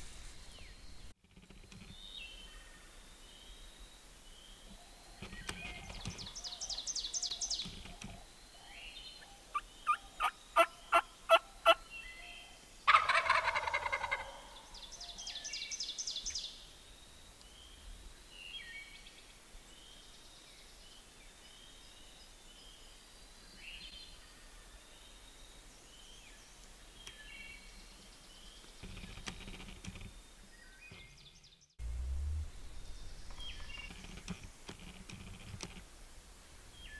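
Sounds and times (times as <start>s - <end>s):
turkey gobbling: 9.5s - 11.8s, 12.9s - 14.6s
turkey yelps: 9.5s - 11.8s, 12.9s - 14.6s.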